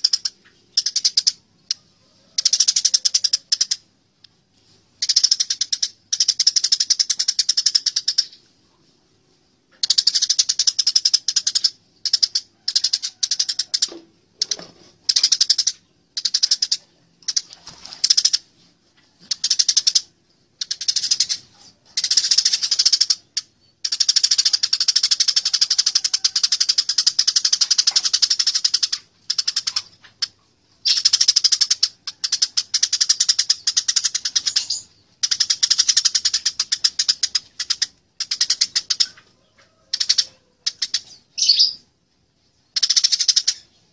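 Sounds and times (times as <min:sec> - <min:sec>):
sparrows chattering: 0:00.0 - 0:03.9, 0:04.6 - 0:08.9, 0:19.2 - 0:41.9, 0:42.7 - 0:43.9.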